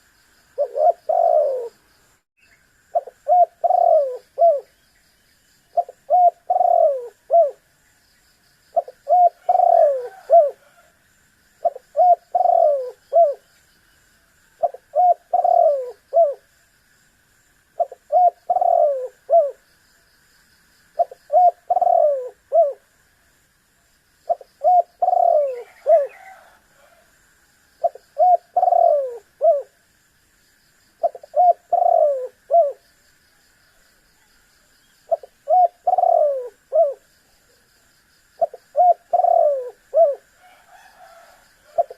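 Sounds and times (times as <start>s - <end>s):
dove cooing: 0.6s - 1.8s, 3.0s - 4.8s, 5.7s - 7.6s, 8.7s - 10.9s, 11.6s - 13.5s, 14.6s - 16.5s, 17.8s - 19.6s, 21.0s - 22.9s, 24.3s - 27.1s, 27.8s - 29.8s, 31.0s - 32.8s, 35.1s - 37.1s, 38.4s - 41.9s.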